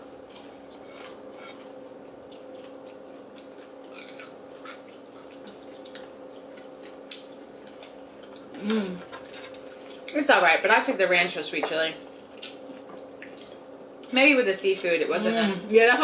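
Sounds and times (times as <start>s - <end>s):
faint steady hum: 0.0s - 16.0s
people chewing crunchy food: 0.2s - 10.2s.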